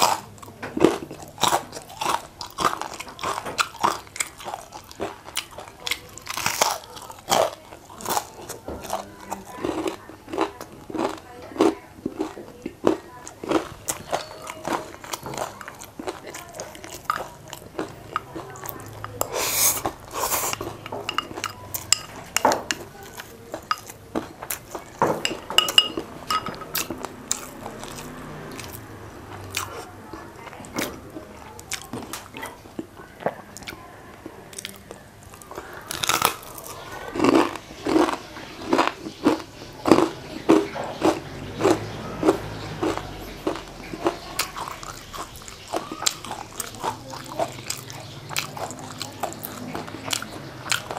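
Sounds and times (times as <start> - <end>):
crunching fried chicken: 0.0 - 50.9.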